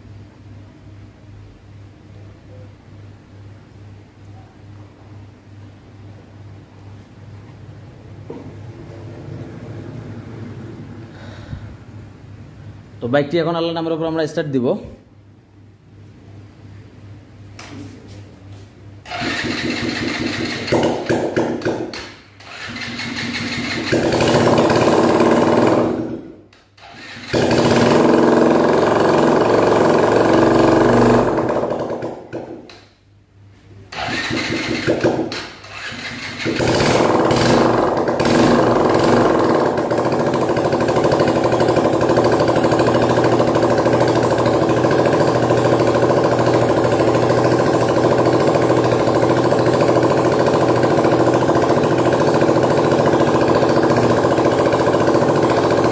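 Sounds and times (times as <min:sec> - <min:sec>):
motorcycle engine starting and running: 0:19.0 - 0:33.0, 0:33.9 - 0:55.9.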